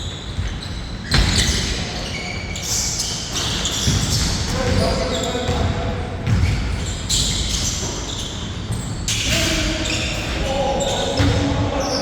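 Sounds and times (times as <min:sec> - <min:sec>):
basketball bouncing on hard court: 0:05.5 - 0:07.5.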